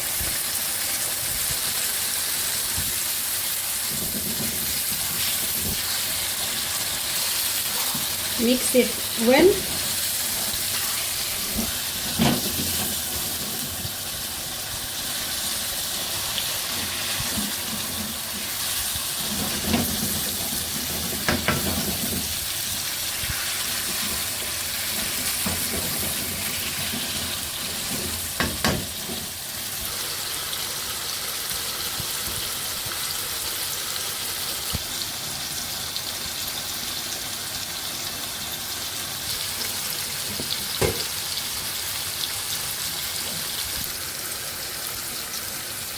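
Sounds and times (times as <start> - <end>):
chicken sizzling in a pan: 0.0 - 45.9
spoon knocking on pan: 21.1 - 22.2, 28.4 - 29.2, 40.3 - 41.1.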